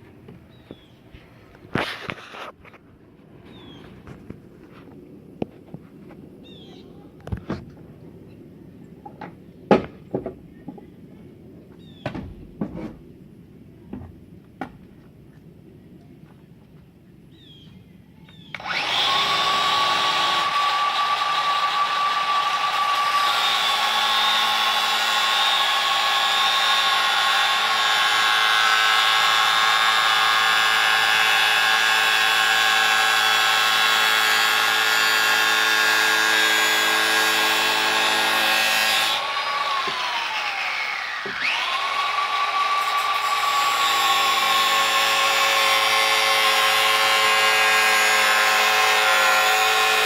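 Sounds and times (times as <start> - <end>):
grinder cutting plastic: 18.6 - 50.0.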